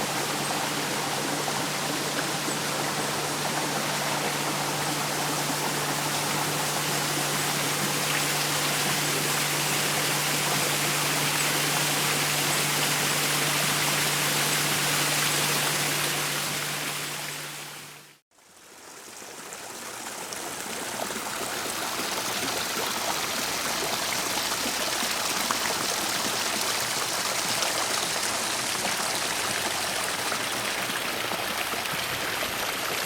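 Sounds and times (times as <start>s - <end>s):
low steady hum: 0.0s - 18.1s
stream water rushing: 0.0s - 18.2s, 19.5s - 33.0s.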